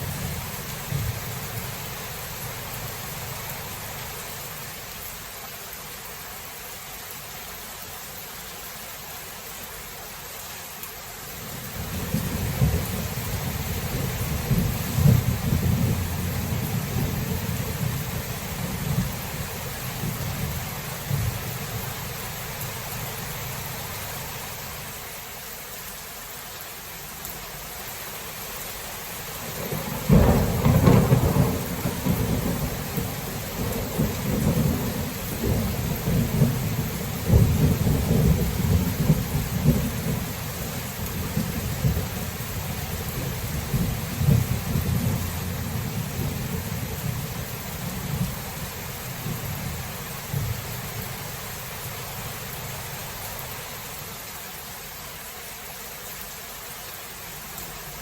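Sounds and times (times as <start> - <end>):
thunder rumbling: 0.0 - 3.3, 11.7 - 22.6, 29.4 - 53.2
rain hissing: 0.0 - 58.0
sharp thunderclap: 29.6 - 40.2.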